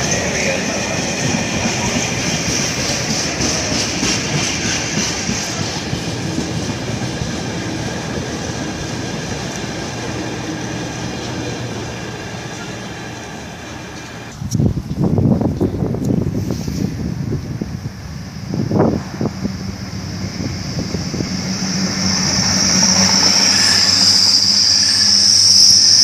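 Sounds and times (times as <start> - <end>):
train wheels on rails: 0.0 - 26.0
high whine: 17.4 - 26.0.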